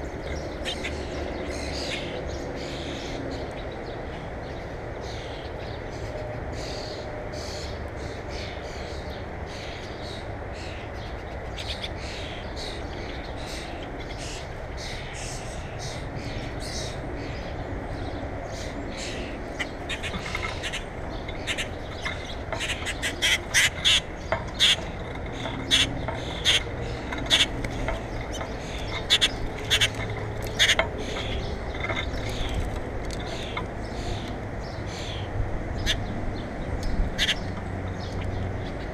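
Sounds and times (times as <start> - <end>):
birds giving sharp calls: 18.5 - 36.1, 37.2 - 38.8.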